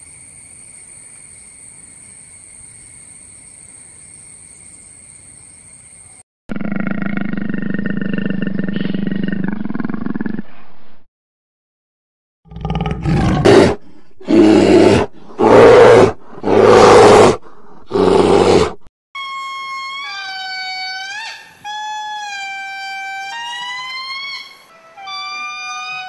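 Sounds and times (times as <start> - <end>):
large animal roaring: 6.5 - 10.4, 12.5 - 18.9.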